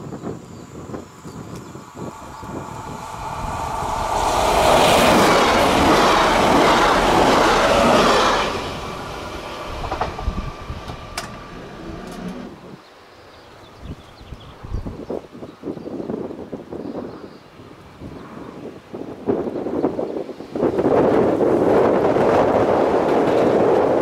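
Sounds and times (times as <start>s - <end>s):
train passing at speed: 0.9s - 12.8s, 20.4s - 24.0s.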